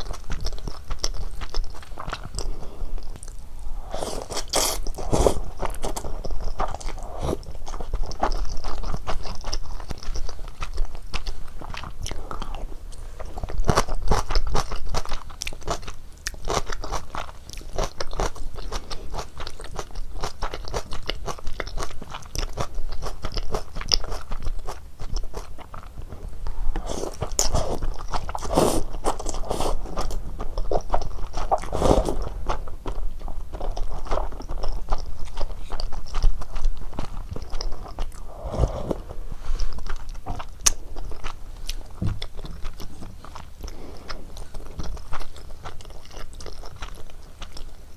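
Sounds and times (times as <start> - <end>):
person chewing noodles: 0.0 - 47.9
loud mouth sounds: 3.9 - 5.6, 26.8 - 30.2, 31.6 - 32.4, 38.1 - 39.3.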